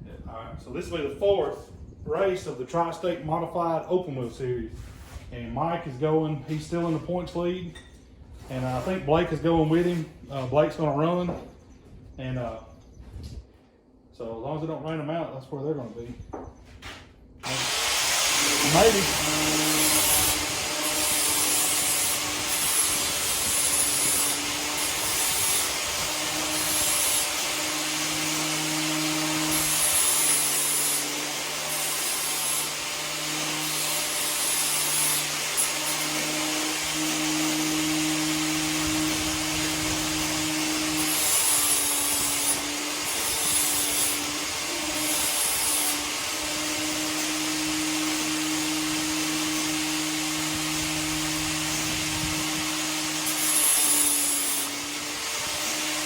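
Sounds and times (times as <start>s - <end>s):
power tool sanding: 17.4s - 56.0s.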